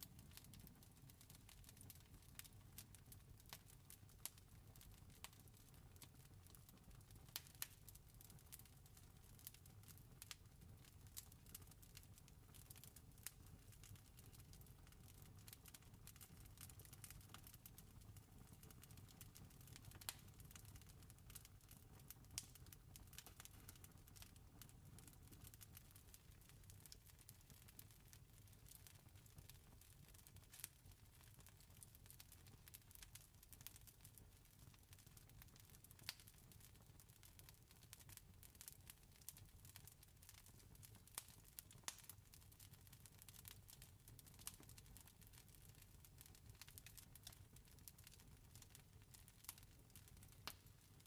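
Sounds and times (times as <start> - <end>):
wood fire crackling: 0.0 - 51.0
campfire crackling: 10.2 - 10.4, 15.4 - 18.1, 19.4 - 21.4, 22.0 - 25.8, 37.3 - 38.7, 39.3 - 40.4, 44.4 - 51.0.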